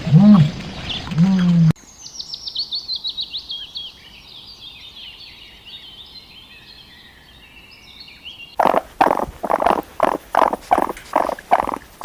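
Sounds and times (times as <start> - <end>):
small birds chirping and twittering: 1.8 - 12.0.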